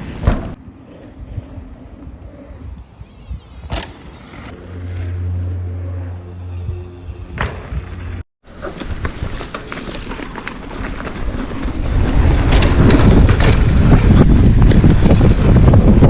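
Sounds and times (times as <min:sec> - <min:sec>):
wind buffeting microphone: 0:11.0 - 0:16.0.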